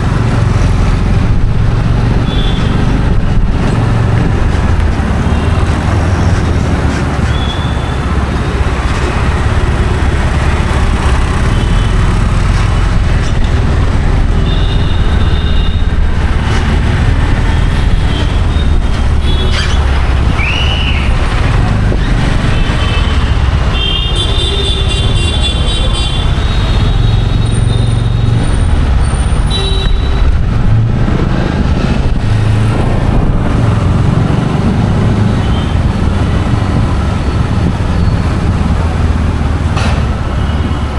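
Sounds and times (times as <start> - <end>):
busy road traffic: 0.0 - 40.9
vehicle horns honking: 2.2 - 2.8, 7.3 - 8.0, 14.4 - 15.9, 22.6 - 28.3, 29.2 - 30.3.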